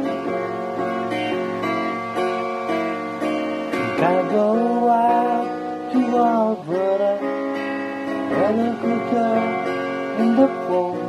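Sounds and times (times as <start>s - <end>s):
acoustic guitar strumming: 0.0s - 11.0s
person singing: 3.8s - 11.0s.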